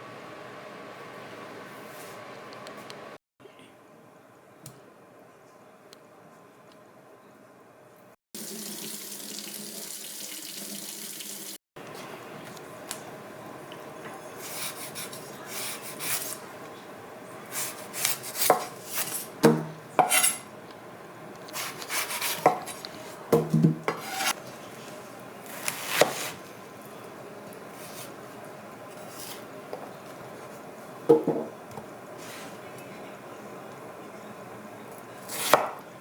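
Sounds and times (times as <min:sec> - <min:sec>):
knocks on cutting board: 0:23.3 - 0:23.9, 0:31.1 - 0:31.5.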